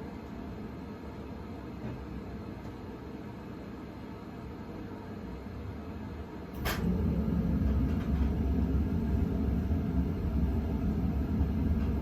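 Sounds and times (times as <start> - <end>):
ceiling fan humming: 0.0 - 12.0.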